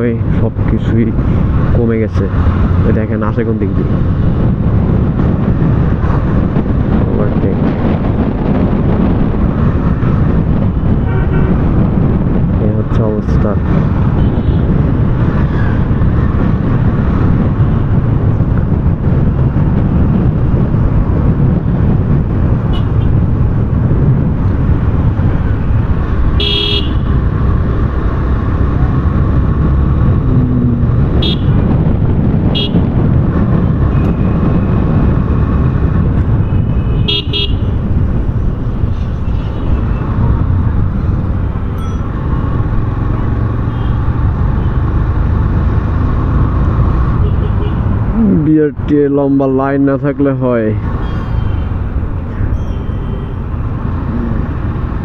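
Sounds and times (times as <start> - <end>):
motorcycle riding rumble: 0.0 - 55.0
vehicle horn toots: 11.0 - 11.6, 22.7 - 23.1, 26.4 - 27.1, 31.2 - 31.6, 32.5 - 32.8, 36.5 - 37.7.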